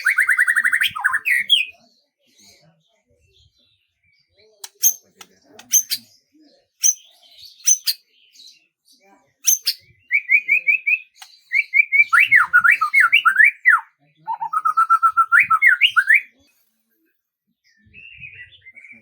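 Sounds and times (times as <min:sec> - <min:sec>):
songbird singing whistled notes: 0:00.0 - 0:01.9, 0:04.6 - 0:06.2, 0:06.8 - 0:08.6, 0:09.4 - 0:16.4
soft bird twitter: 0:00.0 - 0:17.0.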